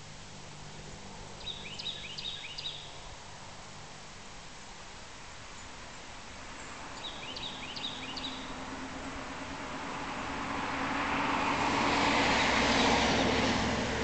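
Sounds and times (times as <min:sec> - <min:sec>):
bird chirping: 0:01.4 - 0:03.0, 0:06.6 - 0:08.6
passing vehicle hum: 0:06.0 - 0:14.0.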